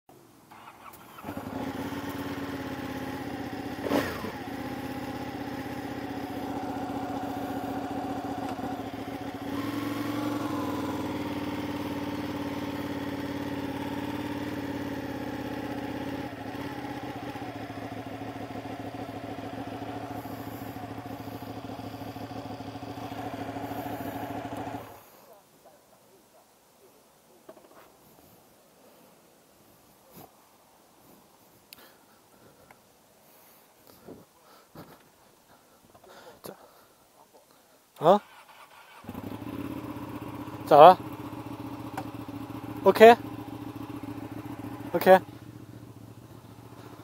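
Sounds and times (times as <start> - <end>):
motorcycle engine running: 0.5 - 25.2, 38.9 - 47.0.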